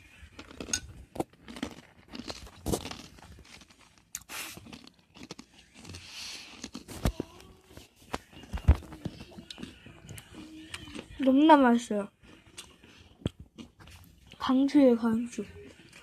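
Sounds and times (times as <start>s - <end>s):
crunchy chewing: 0.0s - 14.5s.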